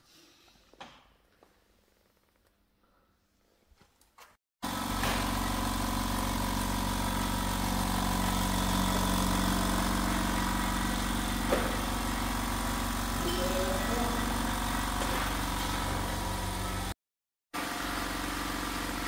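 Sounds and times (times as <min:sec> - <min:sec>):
car engine idling: 0:04.6 - 0:16.9.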